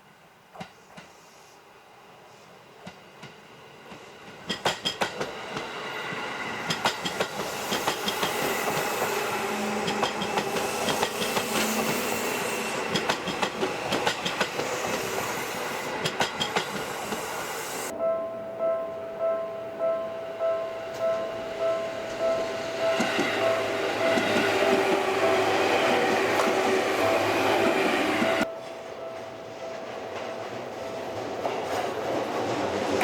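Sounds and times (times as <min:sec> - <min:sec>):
train wheels clicking on rail joints: 0:00.5 - 0:01.4, 0:02.8 - 0:17.9, 0:22.0 - 0:28.5
electric train passing: 0:01.7 - 0:33.0.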